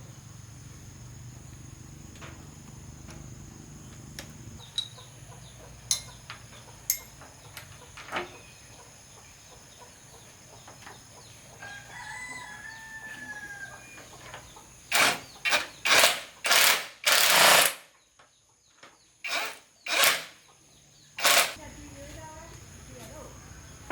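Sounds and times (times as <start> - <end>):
rooster crowing: 11.6 - 14.0.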